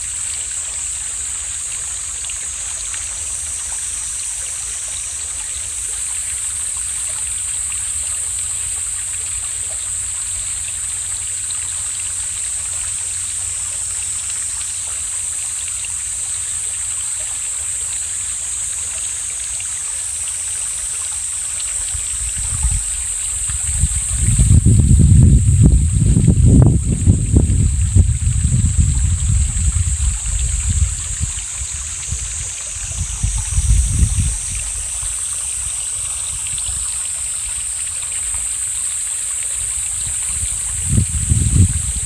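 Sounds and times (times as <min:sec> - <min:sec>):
stream flowing: 0:00.0 - 0:42.0
wind buffeting microphone: 0:21.8 - 0:37.6, 0:39.6 - 0:42.0.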